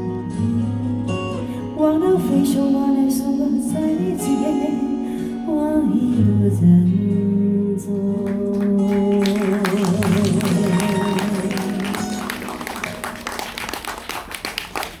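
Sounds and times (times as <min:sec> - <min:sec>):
audience clapping: 0:08.2 - 0:15.0.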